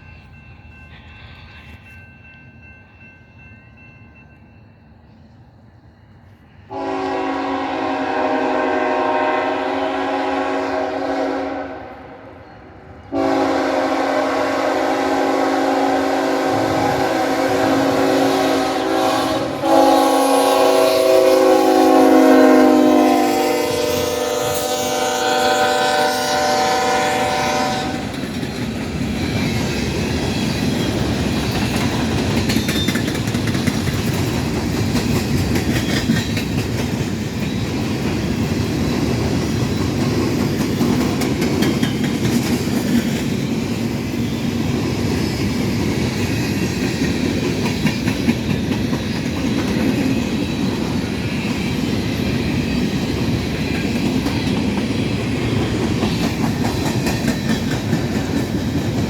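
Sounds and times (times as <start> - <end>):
train cars rumbling past: 0.0 - 59.0
locomotive horn: 6.7 - 12.4, 13.1 - 28.2
wheels clattering over rail joints: 28.1 - 43.2.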